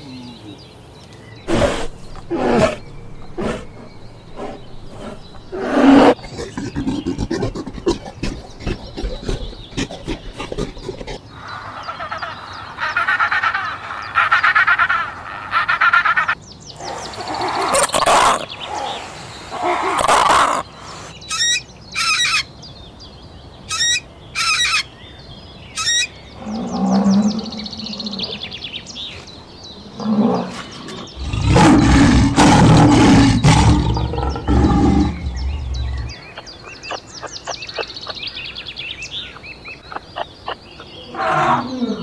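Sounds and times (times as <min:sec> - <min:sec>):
warbling animal calls: 0:04.4 - 0:22.4.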